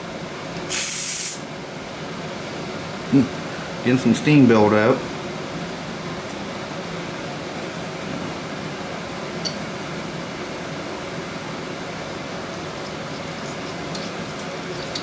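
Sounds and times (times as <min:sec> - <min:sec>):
steam hissing in boiler: 0:00.7 - 0:01.5.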